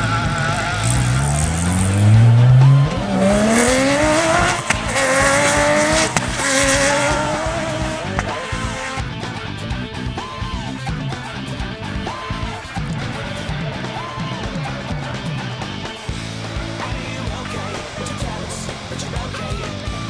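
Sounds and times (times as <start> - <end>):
sharp cracks at gear changes: 0.0 - 10.0
rally car engine revving: 0.0 - 20.0.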